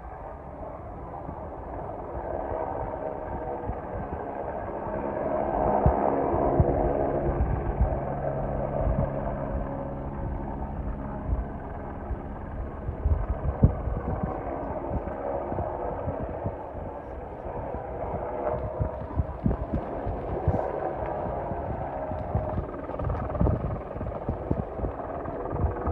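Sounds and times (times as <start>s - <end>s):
helicopter engine and rotor drone: 0.0s - 25.9s.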